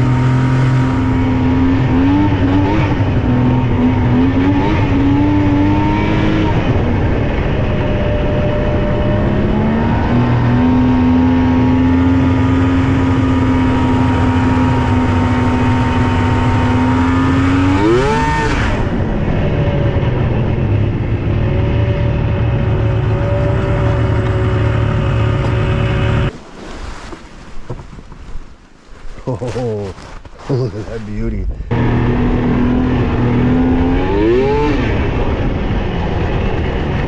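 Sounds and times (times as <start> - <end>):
snowmobile engine running: 0.0 - 27.8.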